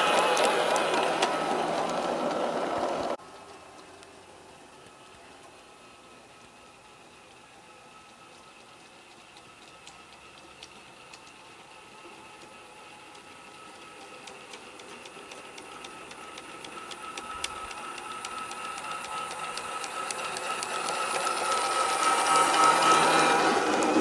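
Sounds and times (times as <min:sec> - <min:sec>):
model steam locomotive running: 0:00.0 - 0:24.0
wheels clicking over rail joints: 0:00.0 - 0:24.0
steam hissing: 0:12.1 - 0:24.0.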